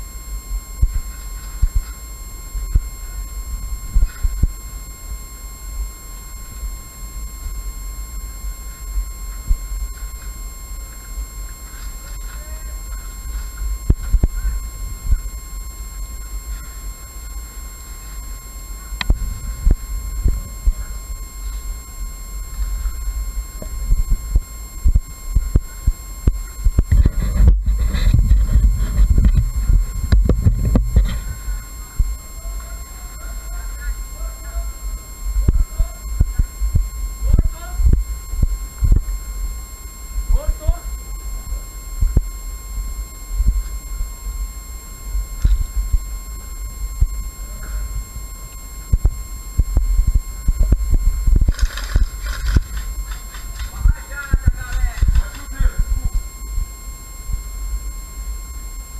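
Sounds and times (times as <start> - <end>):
faint high electronic whine: 0.0 - 58.9
muffled microphone handling thumps: 0.8 - 2.0, 2.6 - 4.6, 8.6 - 15.4, 18.9 - 32.3, 35.4 - 39.2, 45.4 - 48.0, 48.8 - 56.3
low rumble: 19.0 - 25.6, 26.6 - 32.3.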